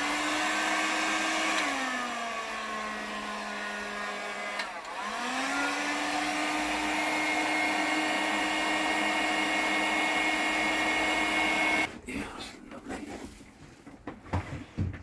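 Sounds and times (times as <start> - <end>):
heat gun fan whine: 0.0 - 11.9.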